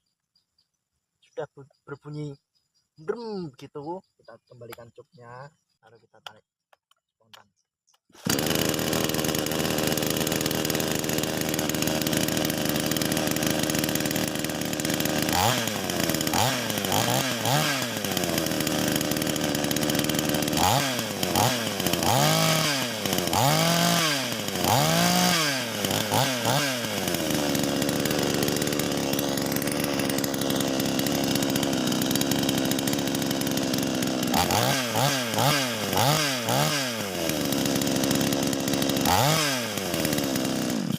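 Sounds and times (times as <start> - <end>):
chainsaw idling and revving: 8.2 - 40.9.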